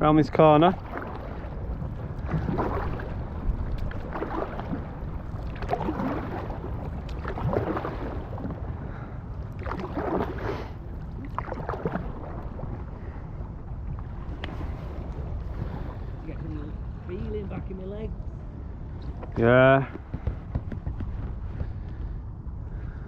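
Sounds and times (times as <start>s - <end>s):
wind on microphone: 0.0s - 23.0s
paddle strokes splashing water: 0.5s - 17.3s.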